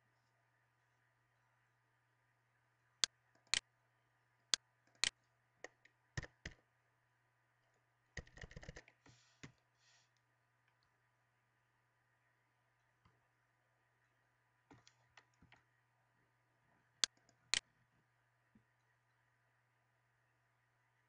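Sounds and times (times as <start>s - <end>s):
faint steady hum: 0.0s - 21.0s
keyboard typing: 4.9s - 6.6s, 8.2s - 9.0s.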